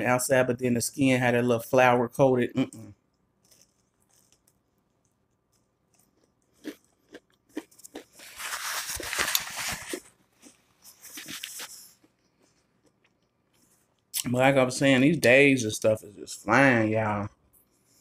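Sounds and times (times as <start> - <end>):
crunchy chewing: 3.4 - 14.2.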